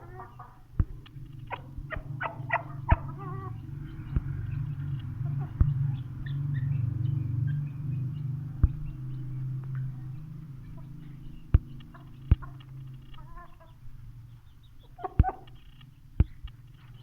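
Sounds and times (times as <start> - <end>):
low hum: 0.0 - 14.9
chickens clucking: 0.0 - 17.0
sharp knocks: 0.8 - 3.4, 8.6 - 9.1.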